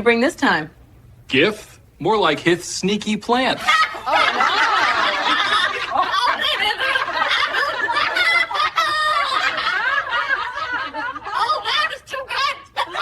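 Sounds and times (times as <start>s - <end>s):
people laughing hard: 3.6s - 13.0s.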